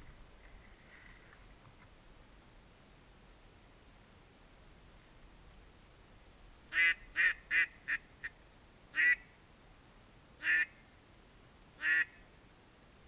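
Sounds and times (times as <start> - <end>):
duck quacking: 6.7 - 8.3, 9.0 - 9.2, 10.4 - 10.7, 11.8 - 12.2.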